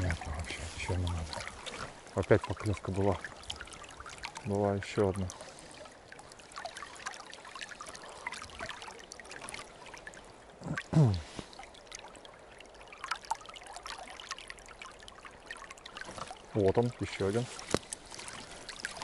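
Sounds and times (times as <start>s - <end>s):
water trickling: 0.0s - 19.0s
low grunt: 10.6s - 11.3s.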